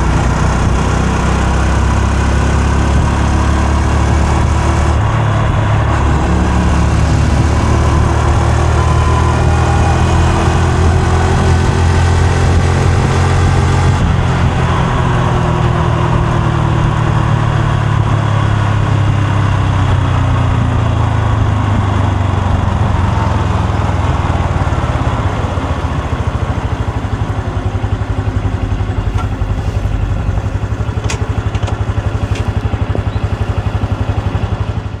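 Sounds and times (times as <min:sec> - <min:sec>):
motorcycle engine: 0:00.0 - 0:35.0
motorcycle engine idling: 0:20.7 - 0:35.0.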